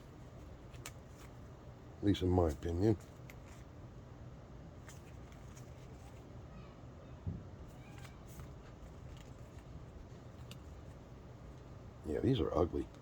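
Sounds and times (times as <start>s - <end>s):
steady low hum: 0.0s - 13.0s
cards being flipped through: 0.6s - 1.4s, 4.8s - 6.2s, 7.9s - 9.7s.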